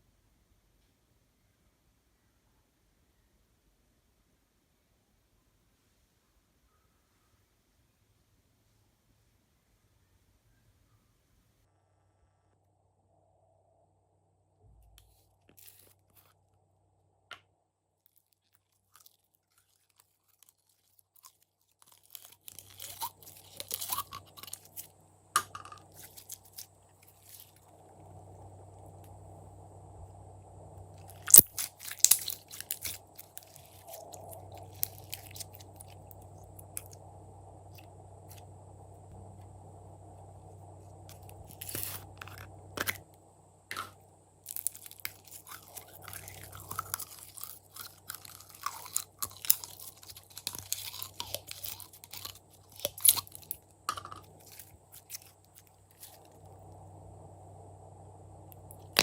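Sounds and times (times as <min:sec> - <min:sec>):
low hum: 0:09.5 - 0:18.0, 0:18.9 - 0:59.0
slime crackling and popping: 0:18.1 - 0:27.8, 0:31.0 - 0:37.0, 0:41.1 - 0:43.1, 0:43.7 - 0:56.3.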